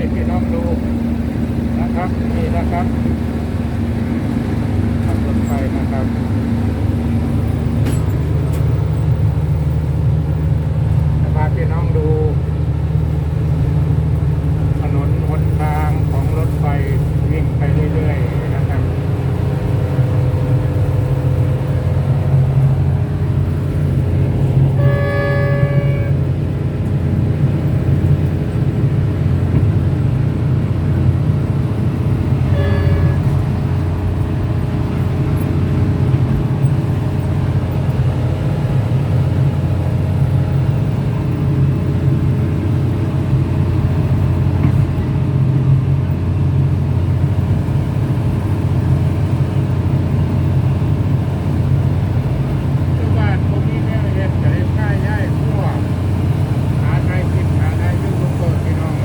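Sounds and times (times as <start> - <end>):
train engine rumble: 0.0 - 59.0
train horn: 24.3 - 26.5, 32.3 - 34.0.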